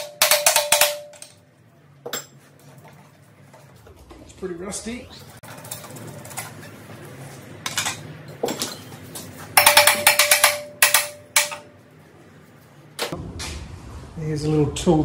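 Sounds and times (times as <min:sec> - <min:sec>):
metal clattering and knocking: 0:09.6 - 0:11.7.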